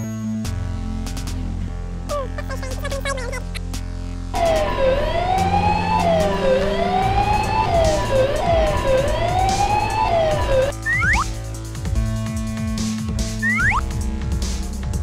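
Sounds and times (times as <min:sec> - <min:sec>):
cartoon police siren wailing: 0:04.4 - 0:11.2, 0:13.4 - 0:13.8.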